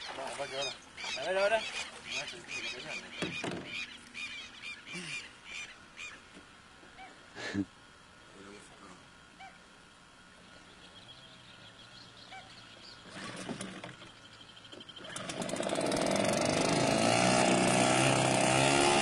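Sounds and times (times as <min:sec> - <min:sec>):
motorboat engine running: 0:12.2 - 0:19.0.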